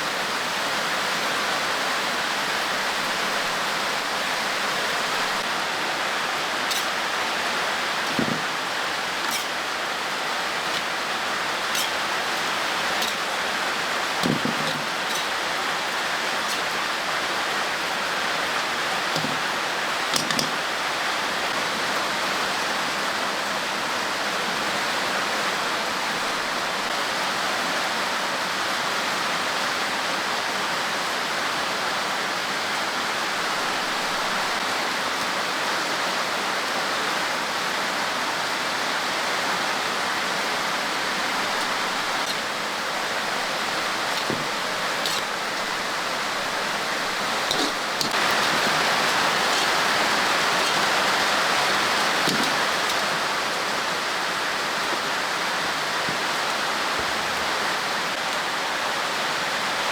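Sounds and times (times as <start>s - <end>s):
rushing water hiss: 0.0s - 59.9s.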